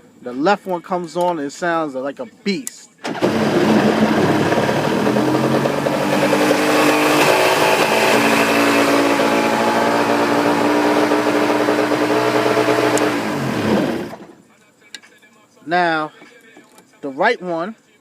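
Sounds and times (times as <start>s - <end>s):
boat engine running: 3.2s - 14.2s.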